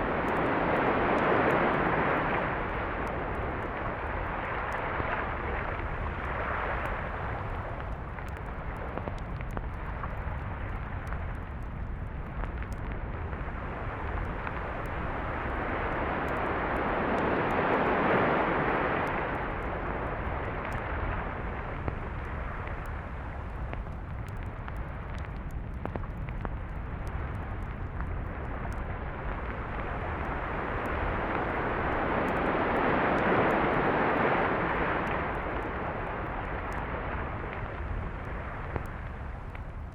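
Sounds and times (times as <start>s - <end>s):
sea waves washing onto beach: 0.0s - 8.0s, 13.5s - 23.4s, 29.5s - 39.5s
steady low rumble: 0.0s - 39.9s.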